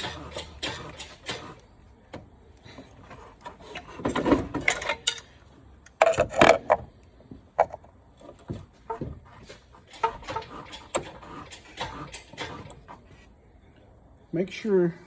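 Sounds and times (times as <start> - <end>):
engine creaking and scraping: 0.0 - 13.9.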